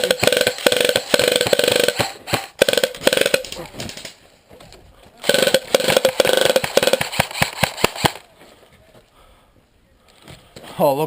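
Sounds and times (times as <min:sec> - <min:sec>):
airsoft gun full-auto burst: 0:00.0 - 0:03.6, 0:05.2 - 0:08.2
airsoft gun single shots: 0:05.3 - 0:08.2.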